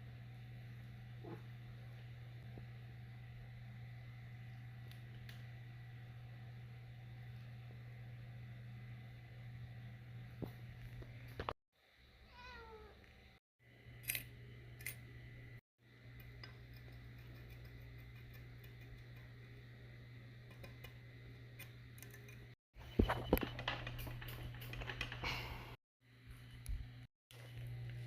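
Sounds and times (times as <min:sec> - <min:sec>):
low shop hum: 0:00.0 - 0:28.0
metal tools clinking: 0:22.1 - 0:25.4.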